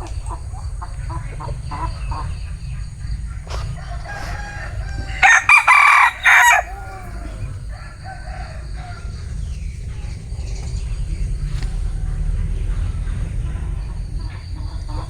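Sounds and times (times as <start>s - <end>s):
rooster crowing: 3.8s - 9.2s.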